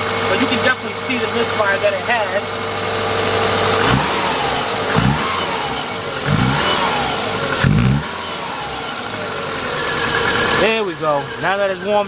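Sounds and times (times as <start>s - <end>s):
car engine misfiring and revving: 0.0s - 12.0s.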